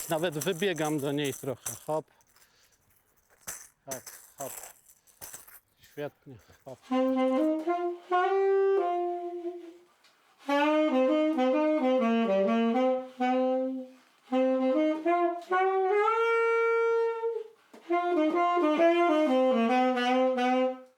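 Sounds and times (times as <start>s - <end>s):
solo saxophone melody: 0.0s - 1.9s, 6.7s - 20.9s
player breathing: 2.1s - 2.9s.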